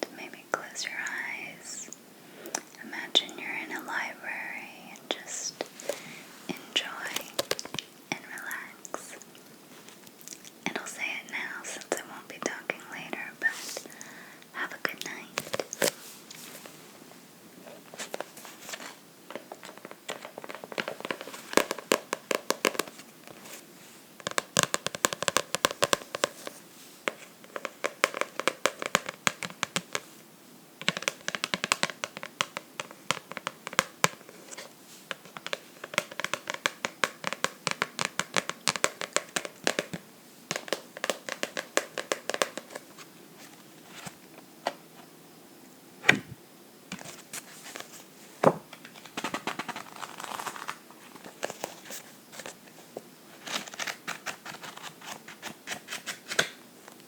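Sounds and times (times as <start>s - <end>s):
fingernails tapping on a book: 19.3s - 23.4s, 24.2s - 30.1s, 30.8s - 34.3s, 35.1s - 42.8s.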